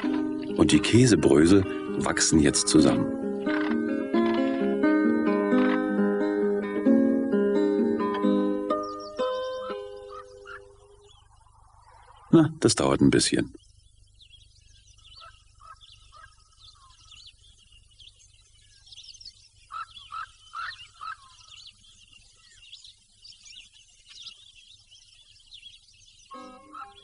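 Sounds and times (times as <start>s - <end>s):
music: 0.0s - 11.1s, 26.3s - 27.0s
small birds chirping: 0.0s - 27.0s.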